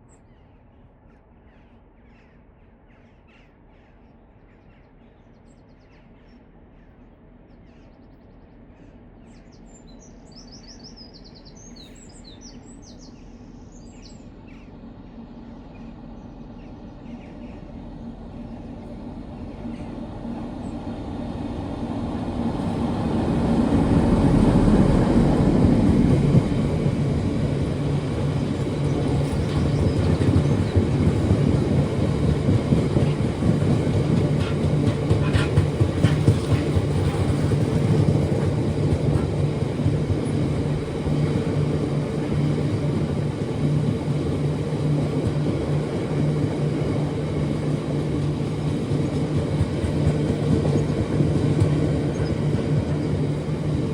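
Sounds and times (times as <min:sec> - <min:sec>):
train passing: 0:03.5 - 0:53.9.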